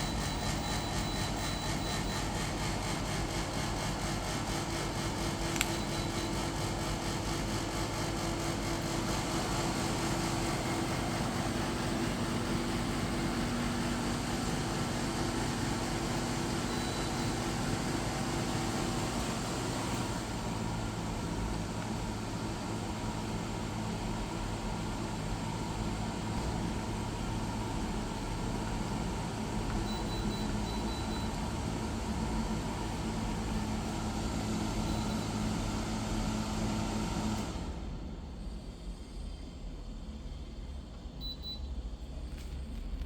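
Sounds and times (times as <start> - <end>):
air conditioner running: 0.0 - 43.0
click: 5.5 - 5.8.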